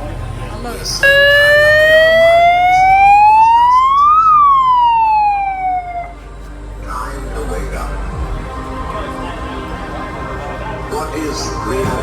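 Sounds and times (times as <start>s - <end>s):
siren wailing: 1.0s - 6.2s.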